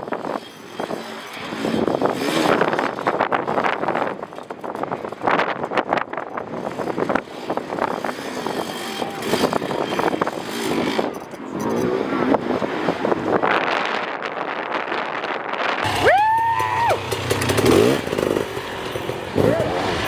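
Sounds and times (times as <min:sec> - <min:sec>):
dirt bike engine revving: 0:00.3 - 0:04.0, 0:15.8 - 0:20.0.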